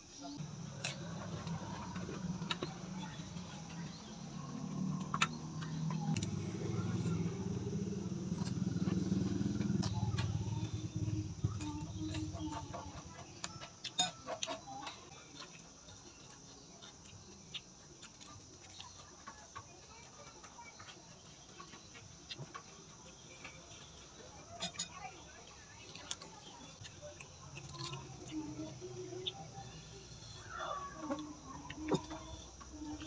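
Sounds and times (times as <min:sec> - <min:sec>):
chewing crunches: 0:25.5 - 0:33.0.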